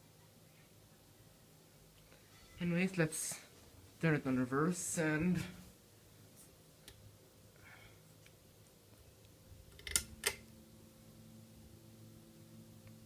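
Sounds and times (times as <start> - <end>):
ceiling fan motor hum: 0.0 - 13.0
fan switch clicks: 9.8 - 10.4.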